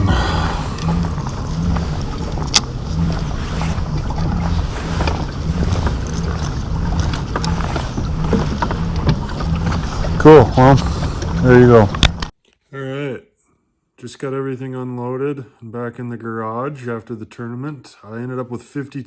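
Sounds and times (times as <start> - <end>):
low rumble with pulsing hum: 0.0 - 12.3.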